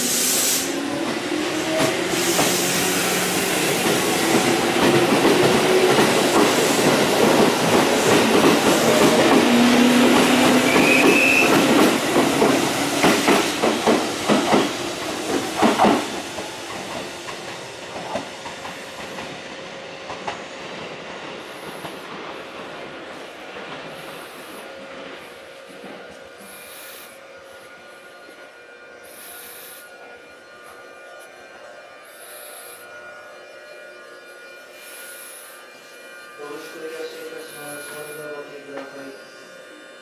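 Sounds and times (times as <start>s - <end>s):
electric train motor whine: 0.0s - 40.0s
high squeal: 10.6s - 11.6s.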